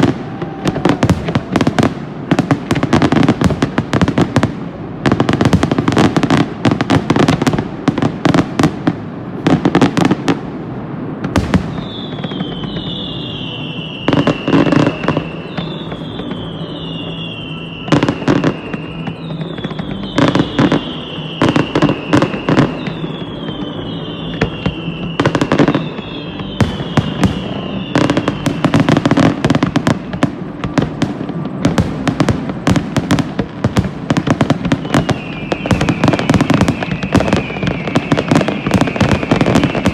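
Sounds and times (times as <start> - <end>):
firework bangs and crackles: 0.0 - 39.9
whistling firework shells: 0.0 - 39.9.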